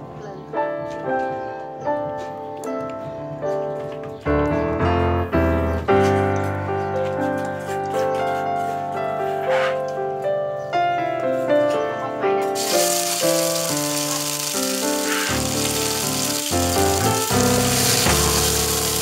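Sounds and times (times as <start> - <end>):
instrumental music: 0.0 - 19.0
paste sizzling in hot oil: 12.6 - 19.0.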